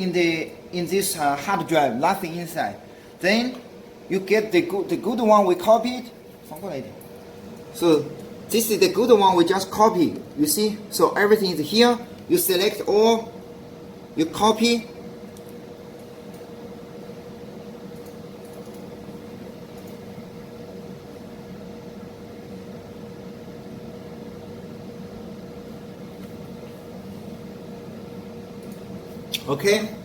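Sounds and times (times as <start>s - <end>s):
background hum: 0.0s - 30.0s.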